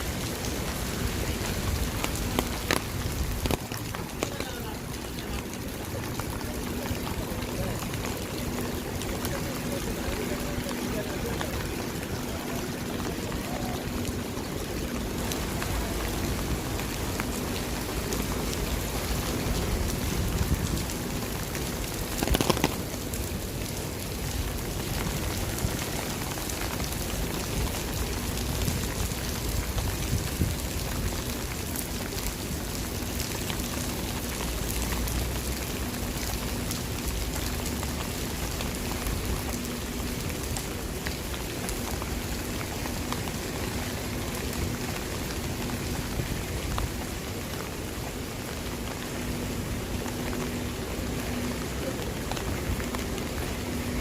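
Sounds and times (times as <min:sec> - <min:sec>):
raindrops ticking on surfaces: 0:00.0 - 0:54.0
steady rain falling: 0:00.0 - 0:54.0.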